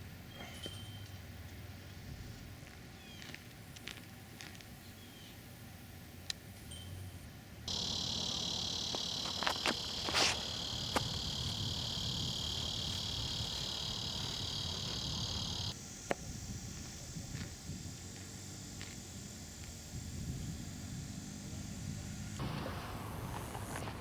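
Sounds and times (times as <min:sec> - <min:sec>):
high insect chirring: 0:07.7 - 0:20.7.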